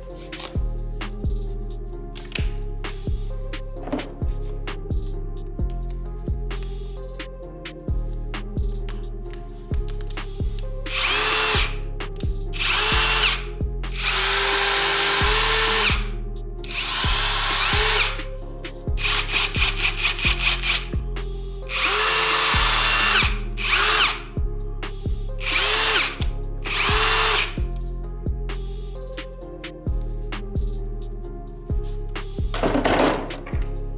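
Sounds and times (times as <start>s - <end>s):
background music with beat: 0.0s - 33.9s
impact driver motor whine: 11.0s - 11.8s, 12.6s - 13.4s, 14.0s - 16.1s, 16.7s - 18.2s, 21.7s - 24.2s, 25.4s - 27.6s.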